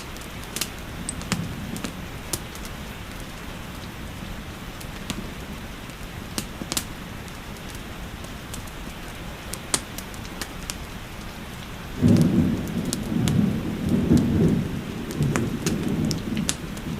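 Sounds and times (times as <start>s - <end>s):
thunder rumbling: 0.0s - 7.3s, 11.6s - 16.9s
rain hiss: 0.0s - 16.9s
wood fire crackling: 0.0s - 16.9s.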